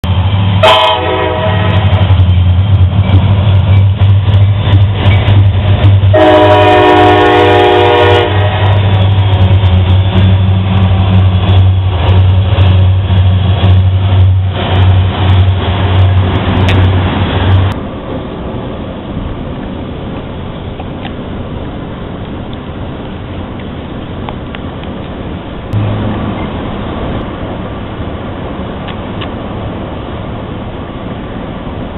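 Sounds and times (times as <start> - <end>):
train engine rumble: 0.0 - 31.9
train horn blasts: 0.6 - 2.1, 6.1 - 9.0
wheels clattering on rails: 1.7 - 6.2, 8.5 - 31.9.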